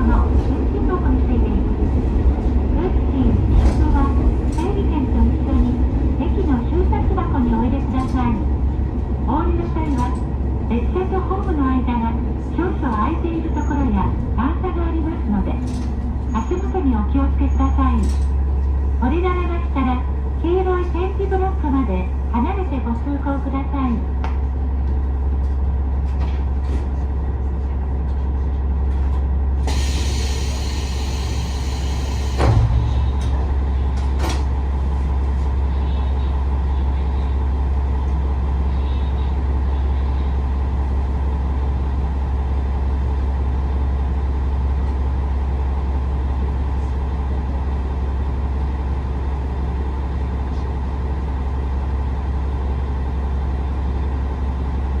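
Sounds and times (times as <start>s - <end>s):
diesel railcar engine idling: 0.0s - 55.0s
thump: 32.4s - 33.0s.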